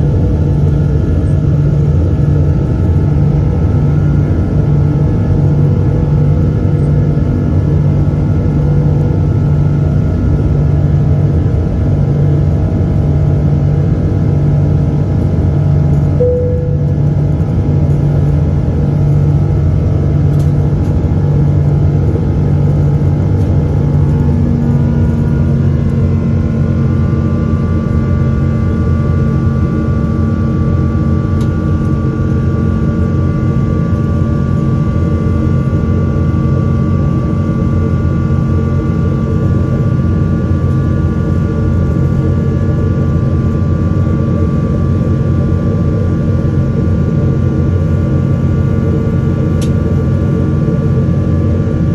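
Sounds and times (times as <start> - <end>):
engine and airflow rumble: 0.0 - 51.9
whining engine tones: 16.2 - 18.2.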